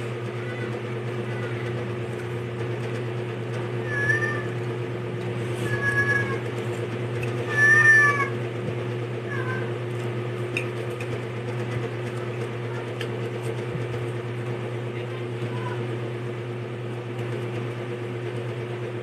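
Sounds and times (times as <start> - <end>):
steady low hum: 0.0 - 19.0
cat meowing: 3.8 - 4.6, 5.6 - 6.4, 7.4 - 8.4, 9.3 - 9.7.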